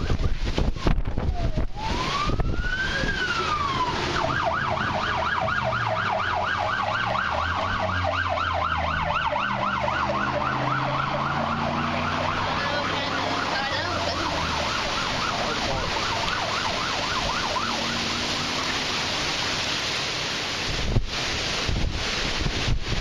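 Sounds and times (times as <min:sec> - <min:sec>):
emergency vehicle siren: 0:00.0 - 0:19.6
vehicle engine hum: 0:03.2 - 0:19.5.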